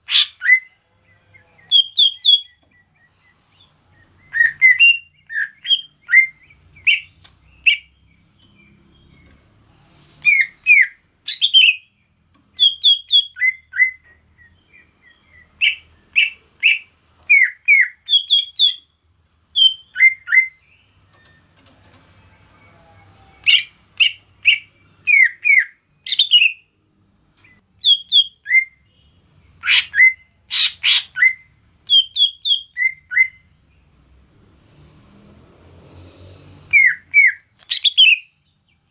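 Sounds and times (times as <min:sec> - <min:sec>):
bird whistling: 0:00.0 - 0:00.7, 0:01.7 - 0:02.6, 0:03.9 - 0:07.9, 0:10.2 - 0:11.9, 0:12.6 - 0:18.9, 0:19.6 - 0:20.6, 0:23.4 - 0:26.6, 0:27.8 - 0:28.8, 0:29.6 - 0:33.5, 0:36.7 - 0:38.4.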